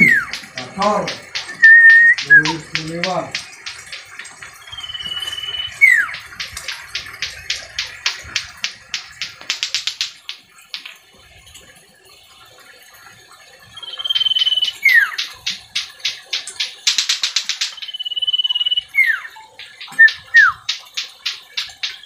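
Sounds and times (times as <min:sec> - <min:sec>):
bird whistling and chattering: 0:00.0 - 0:00.4, 0:01.3 - 0:02.8, 0:04.7 - 0:06.3, 0:13.8 - 0:15.2, 0:17.7 - 0:20.7.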